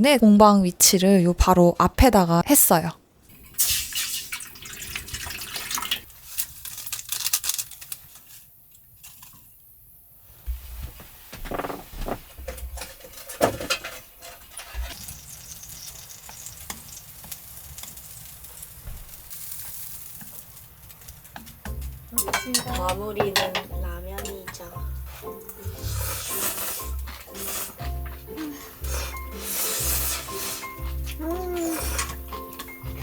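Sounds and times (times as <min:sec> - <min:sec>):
food sizzling: 0:03.4 - 0:11.8, 0:14.2 - 0:33.0
utensils knocking on cookware: 0:21.0 - 0:25.8.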